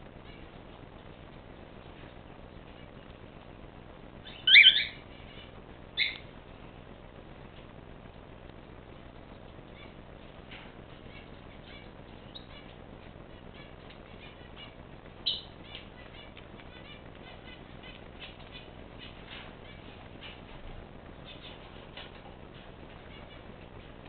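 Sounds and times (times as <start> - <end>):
birds chirping: 4.2 - 6.3, 8.9 - 20.6, 21.2 - 24.0.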